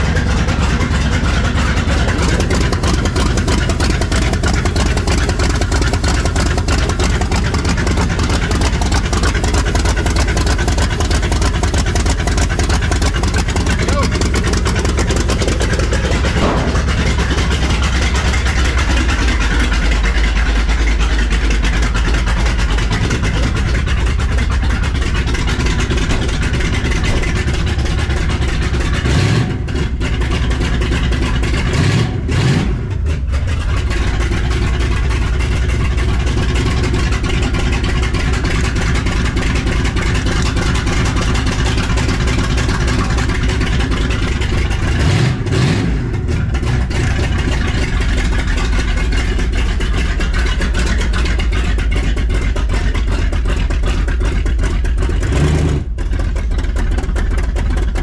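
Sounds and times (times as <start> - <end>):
car engine idling: 0.0 - 58.0
engine revving: 0.0 - 58.0.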